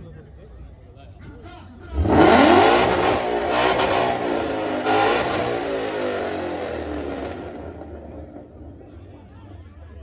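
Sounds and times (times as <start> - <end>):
car engine revving: 1.9 - 8.8.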